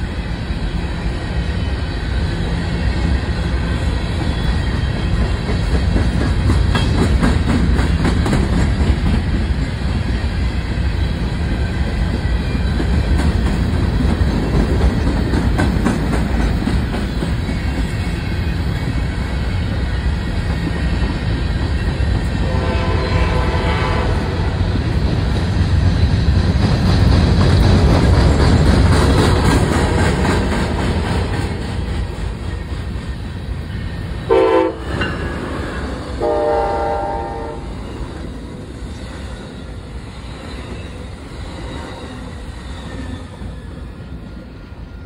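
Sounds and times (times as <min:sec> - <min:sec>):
freight train rumbling past: 0:00.0 - 0:45.0
train horn: 0:22.3 - 0:24.7, 0:34.3 - 0:35.2, 0:36.1 - 0:37.8.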